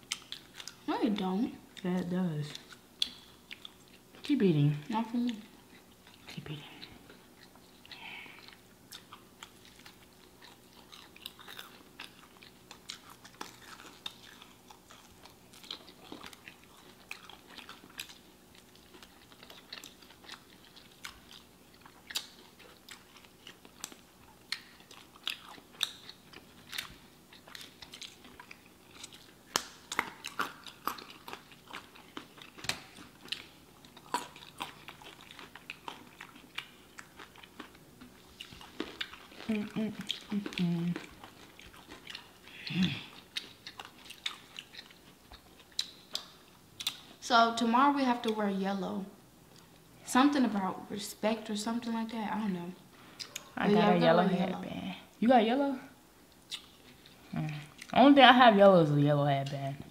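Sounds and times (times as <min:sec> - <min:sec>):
chewing crunchy food: 0:00.0 - 0:48.6, 0:53.0 - 0:53.9, 0:56.3 - 0:58.0.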